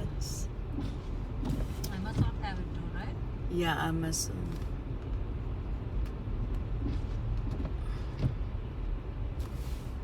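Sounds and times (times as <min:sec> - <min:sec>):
car engine rumble: 0:00.0 - 0:10.0
tyres on snowy road: 0:00.0 - 0:10.0.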